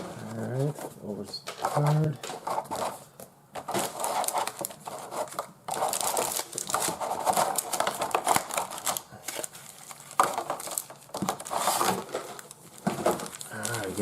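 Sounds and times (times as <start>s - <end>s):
packaging crinkling and tearing: 3.6s - 14.0s.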